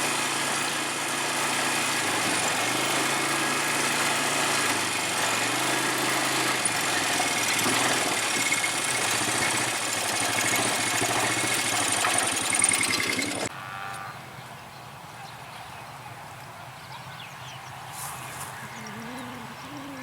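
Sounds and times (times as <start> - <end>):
atv engine running: 0.0 - 14.6
road and wind noise: 14.1 - 20.0.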